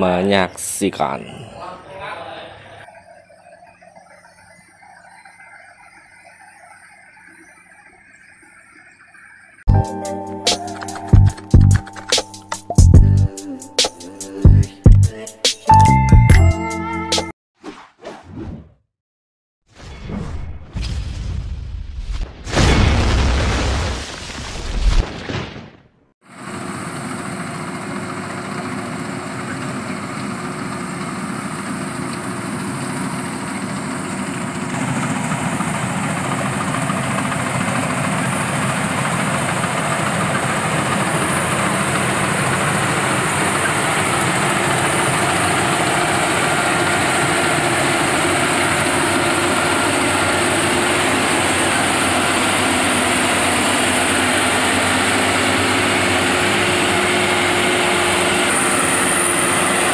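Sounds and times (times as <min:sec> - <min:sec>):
short loud hit: 0:22.2 - 0:23.9
harvesting machine engine running: 0:26.4 - 0:59.9.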